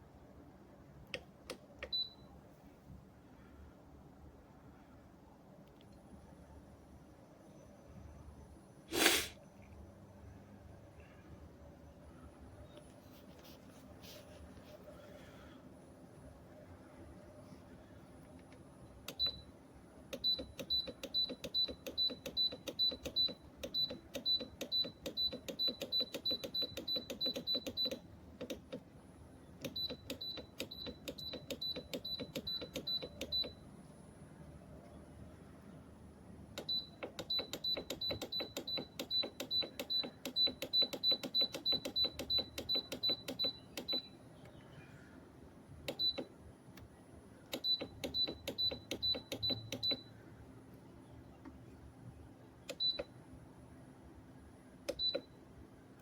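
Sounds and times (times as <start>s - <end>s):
short electronic beeps with clicks: 19.1s - 19.5s, 20.1s - 28.8s, 29.6s - 33.6s, 36.6s - 44.2s, 45.9s - 46.3s, 47.5s - 50.1s, 52.7s - 53.1s, 54.9s - 55.4s.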